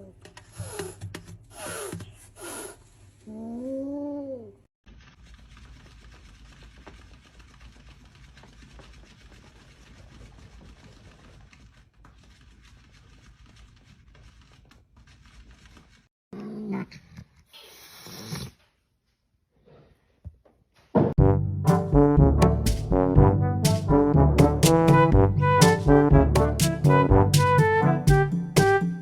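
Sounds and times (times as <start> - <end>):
cat growling: 16.4 - 18.6.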